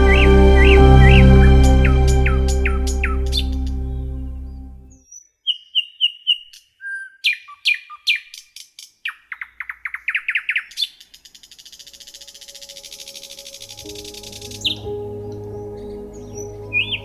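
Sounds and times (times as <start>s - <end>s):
sustained piano chord: 0.0s - 4.9s, 13.7s - 17.0s
songbird singing: 0.0s - 17.0s.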